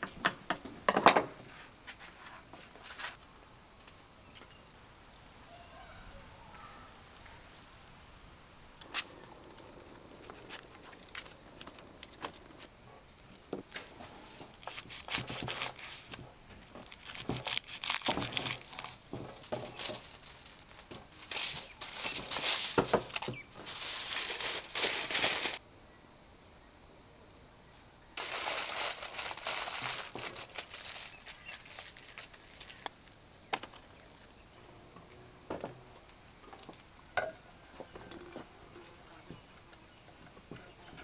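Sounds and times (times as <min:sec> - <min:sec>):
crinkling and rustling: 0:08.8 - 0:25.6, 0:28.2 - 0:34.3.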